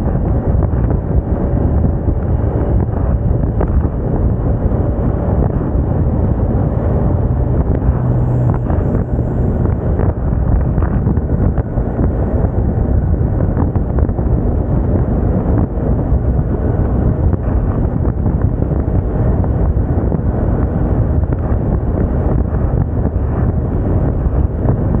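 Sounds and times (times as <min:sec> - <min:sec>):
scooter engine running: 0:00.0 - 0:17.7
wind rushing over microphone: 0:00.0 - 0:25.0.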